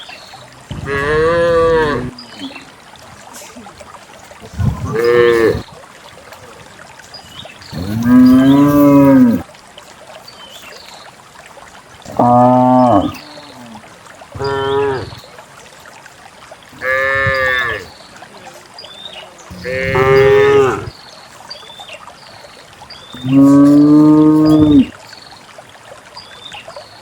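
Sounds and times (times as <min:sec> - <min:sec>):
cattle mooing: 0:00.8 - 0:02.1, 0:07.8 - 0:09.4, 0:16.8 - 0:17.9, 0:19.5 - 0:20.9.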